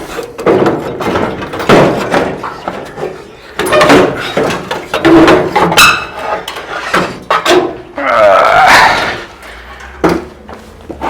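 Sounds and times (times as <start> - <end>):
metal clunks and knocks: 0.2 - 7.9, 10.0 - 10.4.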